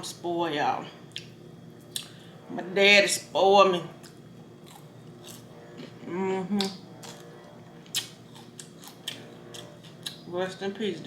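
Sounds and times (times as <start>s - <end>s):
person chewing crunchy food: 4.0s - 6.0s, 6.6s - 10.2s.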